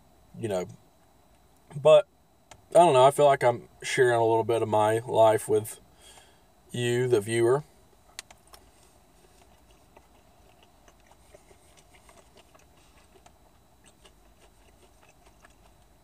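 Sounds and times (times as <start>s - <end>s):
faint chewing clicks and smacks: 7.9s - 16.0s.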